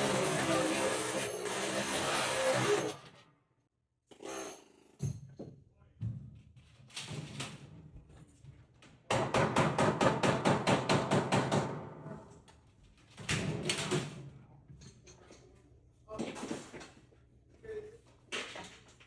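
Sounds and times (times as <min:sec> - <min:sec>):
air hammer on sheet metal: 0:00.0 - 0:03.0.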